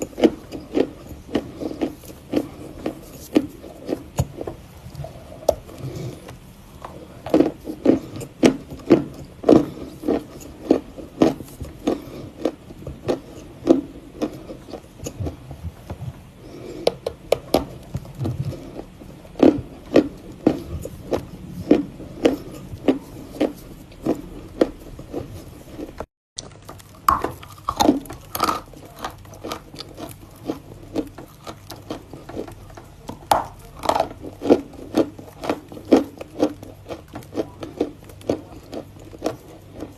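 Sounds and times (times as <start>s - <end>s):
chewing chalk crunches: 16.9s - 39.9s.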